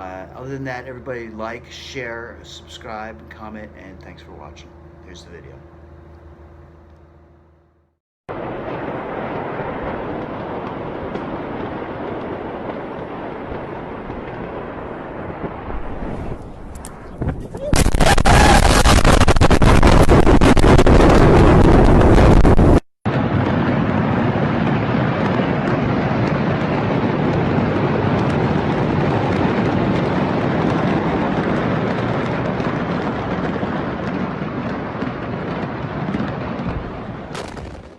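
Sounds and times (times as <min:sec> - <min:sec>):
loud explosion blast: 0:08.3 - 0:37.9
long rumbling roar: 0:23.1 - 0:37.4.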